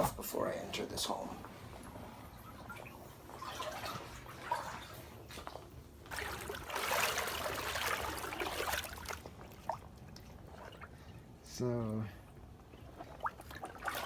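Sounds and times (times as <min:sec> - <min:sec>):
person wading through water: 0:01.6 - 0:11.4, 0:12.2 - 0:14.0.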